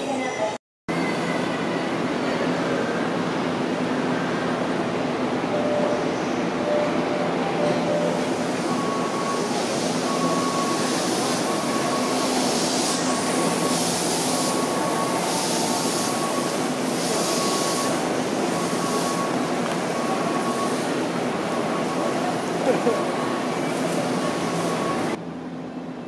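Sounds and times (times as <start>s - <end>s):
crowd noise: 0.0s - 25.2s
train humming: 1.0s - 26.0s
short electronic beep: 5.5s - 9.5s, 17.3s - 20.9s.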